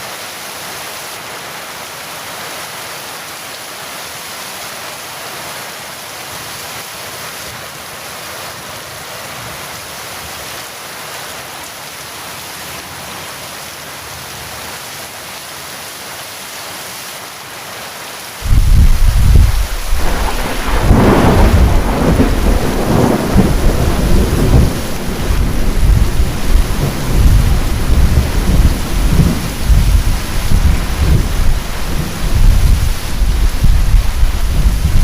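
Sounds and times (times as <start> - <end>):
heavy rain: 0.0 - 35.0
sharp thunder crack: 18.4 - 35.0
thunder rumbling: 18.4 - 35.0.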